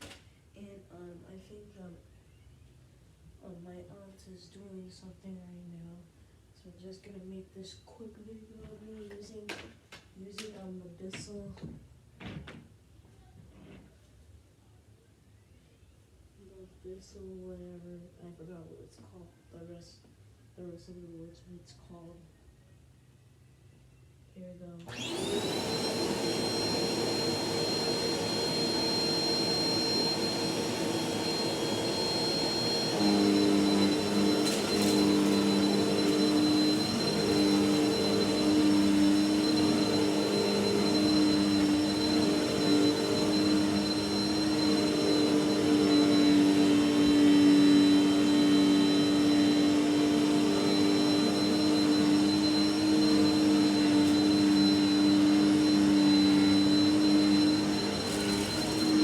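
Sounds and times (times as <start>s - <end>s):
vacuum cleaner whining: 24.8s - 59.0s.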